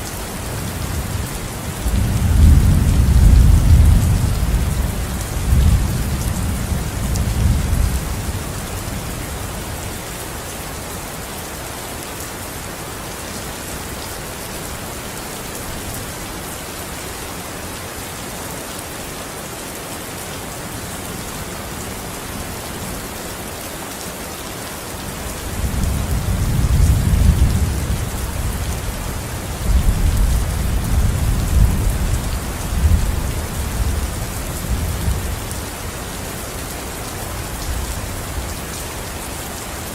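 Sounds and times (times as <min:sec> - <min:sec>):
heavy rain falling: 0:00.0 - 0:39.9
low rolling thunder: 0:01.8 - 0:08.4, 0:25.6 - 0:35.5.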